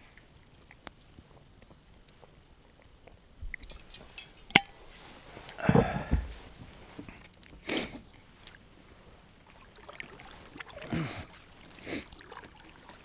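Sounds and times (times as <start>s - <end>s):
water swishing around kayak: 8.4s - 13.0s.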